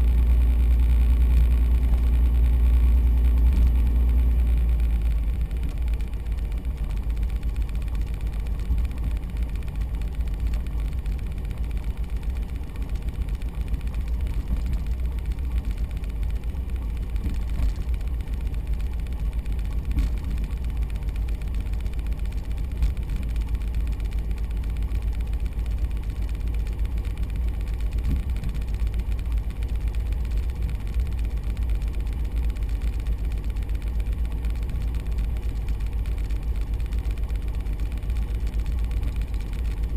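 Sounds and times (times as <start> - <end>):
small plane engine running: 0.0 - 39.9.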